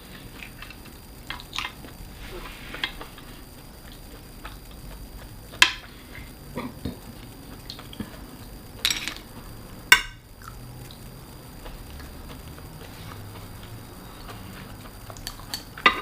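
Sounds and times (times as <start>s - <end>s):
tableware clinking: 8.8s - 9.3s, 9.9s - 10.2s, 15.2s - 16.0s.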